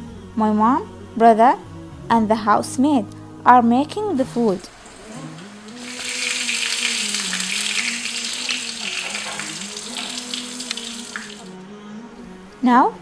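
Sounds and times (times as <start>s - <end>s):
soft background music: 0.0s - 13.0s
hiss of food preparation: 4.7s - 11.5s.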